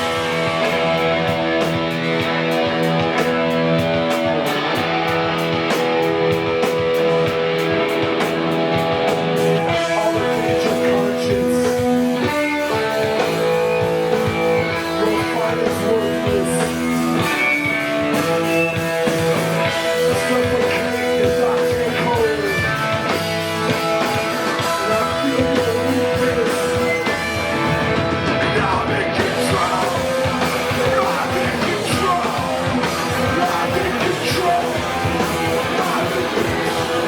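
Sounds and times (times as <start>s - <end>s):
live band with guitar: 0.0s - 37.0s.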